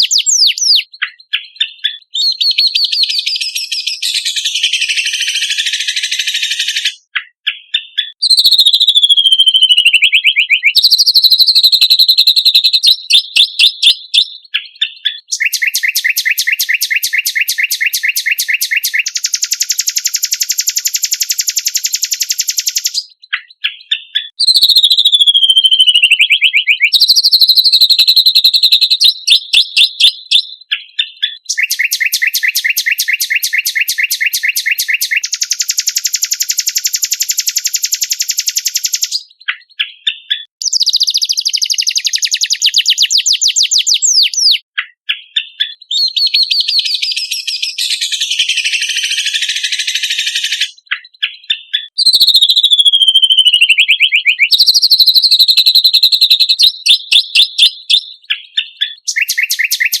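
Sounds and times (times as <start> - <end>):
bird singing fast high trills: 0.0 - 60.0.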